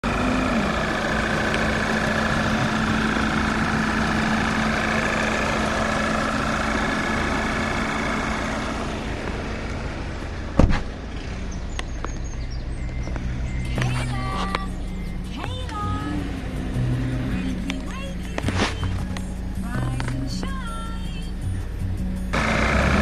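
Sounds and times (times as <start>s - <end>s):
car engine idling: 0.0s - 23.0s
sharp thump: 10.6s - 11.0s.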